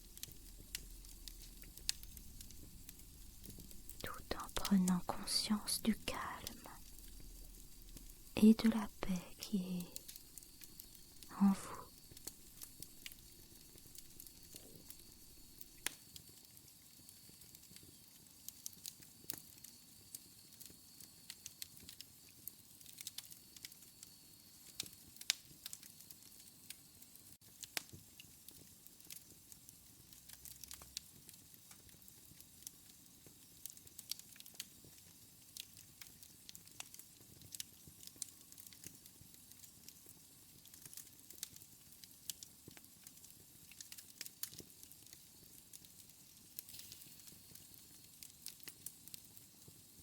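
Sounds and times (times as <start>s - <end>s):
wood fire crackling: 0.0s - 50.0s.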